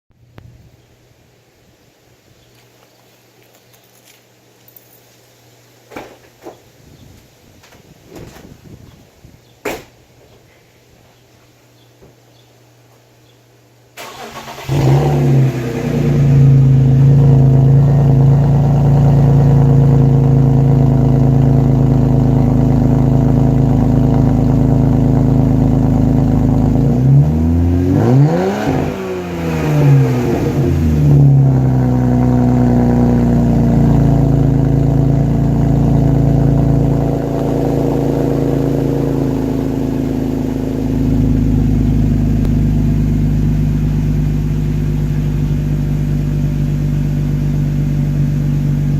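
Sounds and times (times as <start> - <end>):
car engine revving: 14.0 - 48.9
car engine starting and idling: 14.0 - 48.9.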